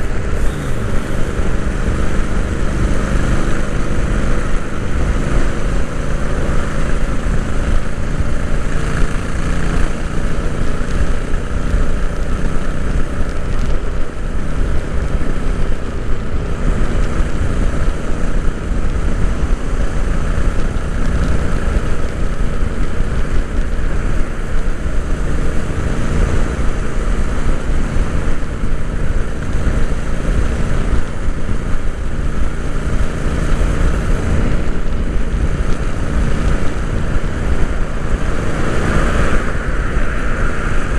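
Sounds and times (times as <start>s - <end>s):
motorcycle engine running: 0.0s - 40.9s
wind rush on microphone: 0.0s - 40.9s.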